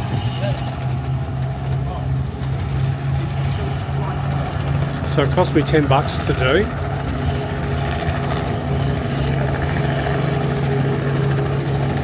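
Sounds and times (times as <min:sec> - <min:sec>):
train engine humming: 0:00.0 - 0:12.0.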